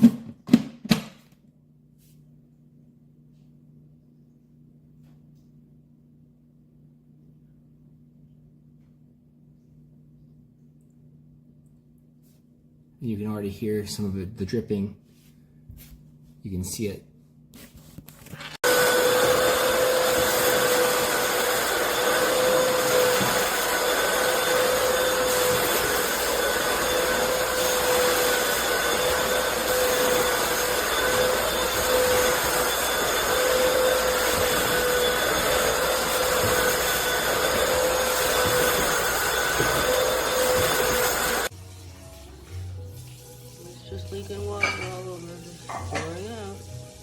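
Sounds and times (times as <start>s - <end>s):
floor cleaner vacuum motor whine: 18.4s - 47.0s.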